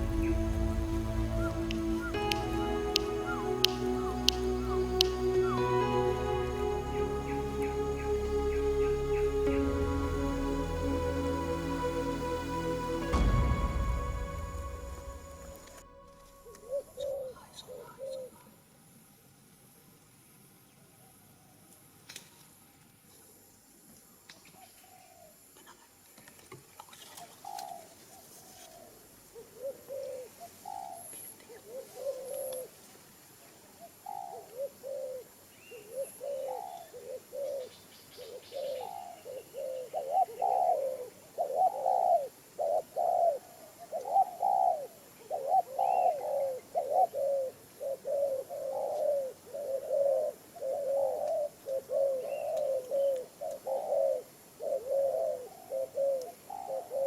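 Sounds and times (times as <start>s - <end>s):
dove cooing: 29.4s - 32.7s, 33.8s - 57.0s.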